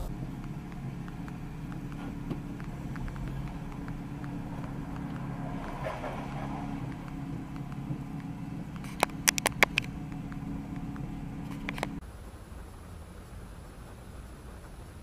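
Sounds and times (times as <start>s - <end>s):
car engine idling: 0.0s - 12.0s
sharp clicks: 0.0s - 12.0s.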